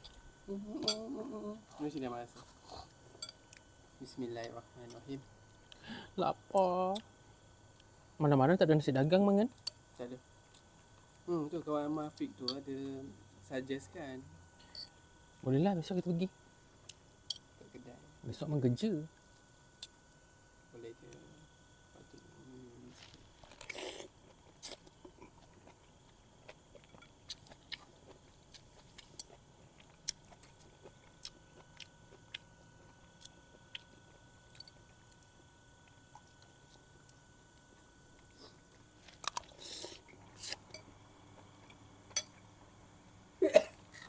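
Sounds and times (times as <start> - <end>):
person chewing and biting: 23.1 - 40.7.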